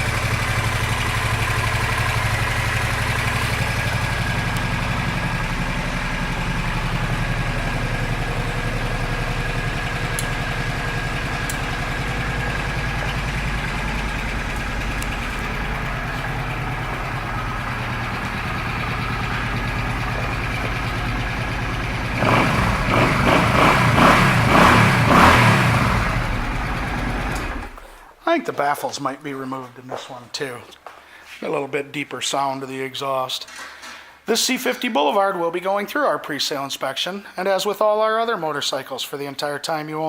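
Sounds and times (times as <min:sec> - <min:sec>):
motorcycle engine idling and revving: 0:00.0 - 0:28.1.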